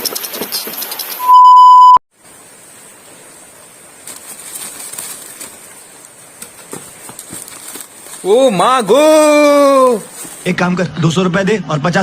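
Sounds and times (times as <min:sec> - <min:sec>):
censor bleep tone: 0:01.2 - 0:02.0
light rustling: 0:04.0 - 0:09.0, 0:09.8 - 0:10.5.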